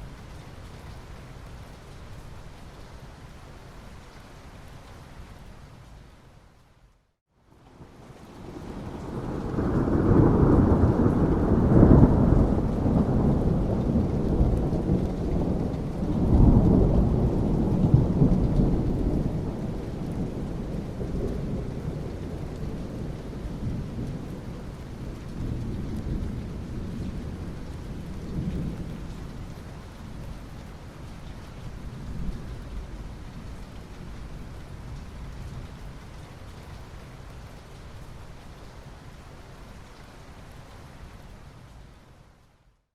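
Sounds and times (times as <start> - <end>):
steady rain: 0.0 - 42.9
rolling thunder: 8.4 - 29.4.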